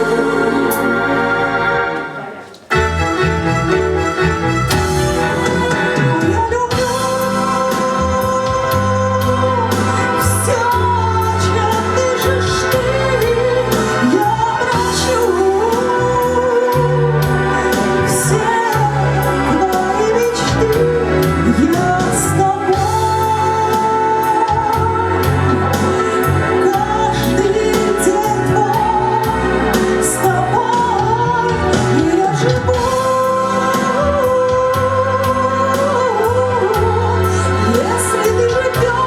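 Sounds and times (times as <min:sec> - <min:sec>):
woman singing a ballad: 0:00.0 - 0:01.2, 0:05.3 - 0:39.0
keyboards bass and drums backing: 0:00.0 - 0:39.0.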